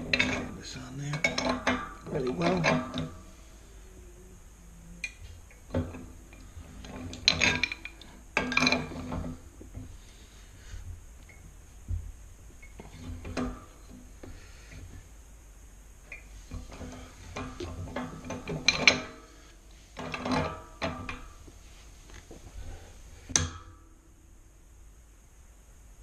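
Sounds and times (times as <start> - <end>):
pipe wrench clanking on metal pipe: 0.0 - 3.2, 6.8 - 9.4.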